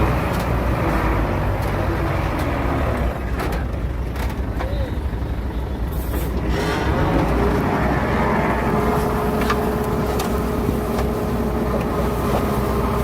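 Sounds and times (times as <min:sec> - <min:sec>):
heavy diesel machinery rumbling: 0:00.0 - 0:13.0.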